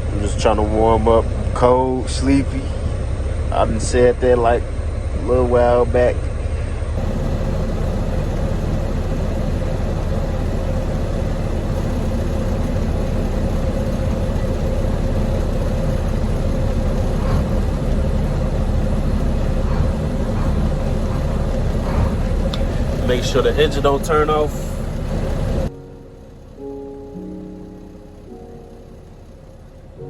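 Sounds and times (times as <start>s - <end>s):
diesel truck engine idling: 0.0s - 30.0s
faint steady hum: 0.0s - 30.0s.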